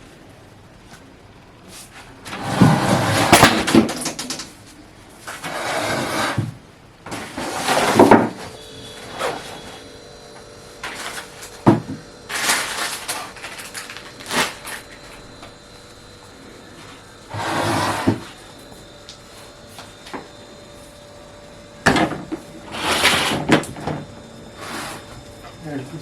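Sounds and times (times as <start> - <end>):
objects scraping and sliding: 1.8 - 3.6, 5.2 - 6.5, 7.1 - 8.4, 16.8 - 18.4, 22.7 - 23.7, 24.6 - 25.2.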